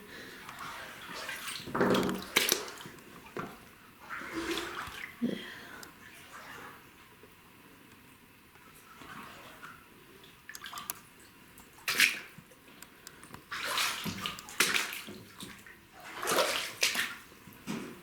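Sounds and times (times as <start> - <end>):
footsteps wading through water: 0.4 - 5.2, 13.4 - 18.0.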